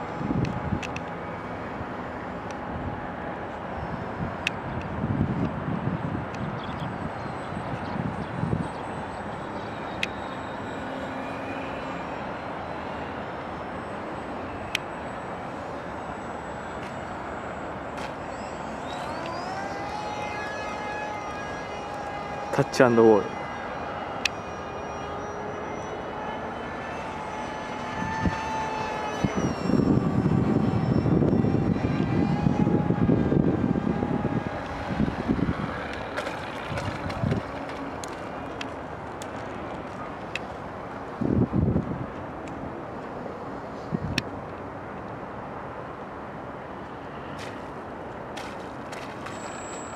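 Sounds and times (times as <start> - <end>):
wind noise on microphone: 0.0 - 2.0, 2.6 - 10.1, 27.5 - 40.0, 40.6 - 44.5
model plane motor whine: 0.0 - 49.9.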